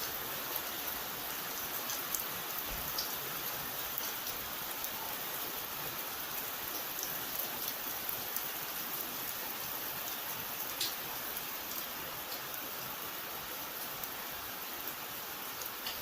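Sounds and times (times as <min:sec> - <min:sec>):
steady rain hissing: 0:00.0 - 0:16.0
rain drop ticks: 0:01.8 - 0:03.2, 0:10.7 - 0:11.0, 0:15.6 - 0:16.0.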